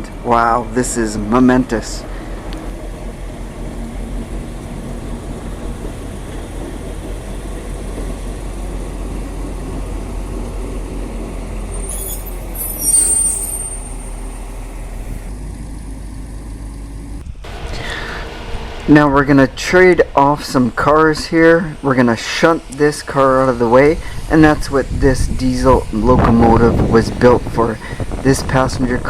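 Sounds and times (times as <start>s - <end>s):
locomotive diesel engine running: 0.0s - 29.0s
high hiss with thin squeal: 11.8s - 14.3s.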